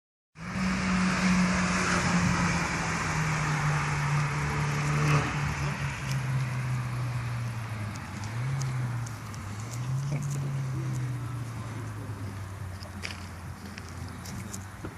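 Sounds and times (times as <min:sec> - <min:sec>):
car engine idling: 0:05.5 - 0:14.9.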